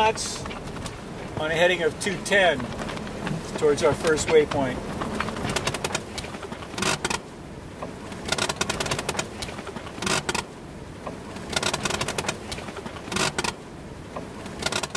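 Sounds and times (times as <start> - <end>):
wind: 0.0 - 14.9.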